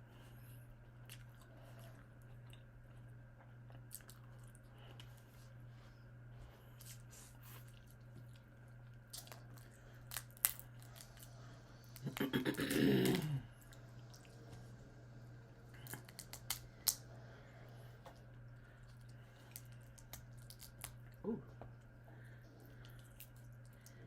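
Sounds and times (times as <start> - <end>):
steady low hum: 0.0 - 24.0
chewing crunches: 0.8 - 5.5, 6.7 - 12.3, 15.8 - 17.1, 18.1 - 24.0.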